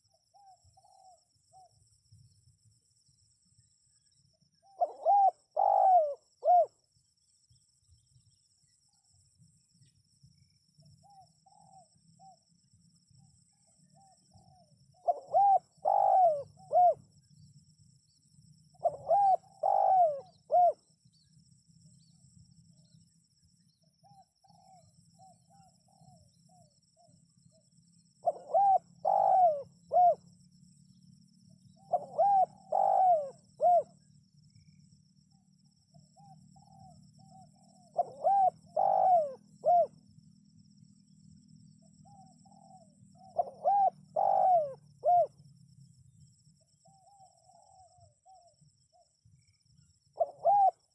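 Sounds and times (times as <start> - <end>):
dove cooing: 0.0 - 1.7, 4.6 - 6.8, 11.0 - 12.4, 13.8 - 17.1, 18.7 - 20.8, 24.0 - 27.2, 28.2 - 30.4, 31.7 - 34.8, 36.0 - 40.0, 42.0 - 45.4, 46.8 - 49.1, 50.1 - 50.9.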